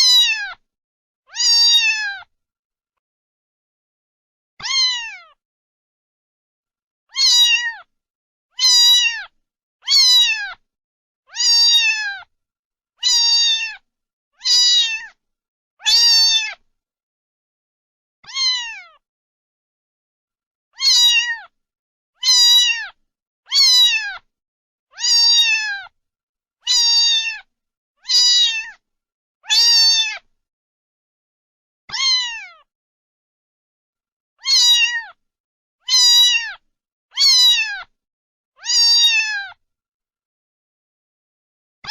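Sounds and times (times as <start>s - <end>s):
cat meowing: 0.0s - 0.6s, 1.3s - 2.3s, 4.6s - 5.4s, 7.1s - 7.9s, 8.6s - 10.6s, 11.3s - 12.3s, 13.0s - 13.8s, 14.4s - 15.2s, 15.8s - 16.6s, 18.2s - 19.0s, 20.8s - 21.6s, 22.2s - 24.3s, 24.9s - 26.0s, 26.6s - 28.8s, 29.4s - 30.3s, 31.9s - 32.7s, 34.4s - 35.2s, 35.8s - 36.6s, 37.2s - 37.9s, 38.6s - 39.6s.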